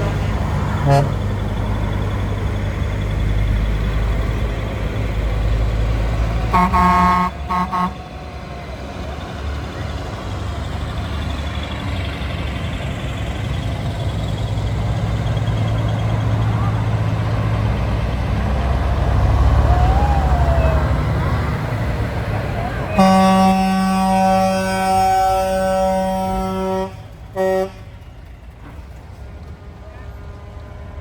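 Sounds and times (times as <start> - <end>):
truck horn toots: 0.0 - 1.6, 6.4 - 8.2, 22.6 - 28.2
truck engines rumbling: 0.0 - 31.0.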